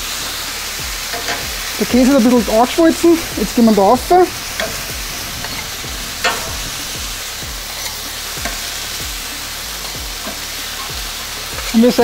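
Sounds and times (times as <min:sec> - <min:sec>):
steak and onions sizzling: 0:00.0 - 0:12.0
metal spatulas scraping: 0:04.3 - 0:08.6.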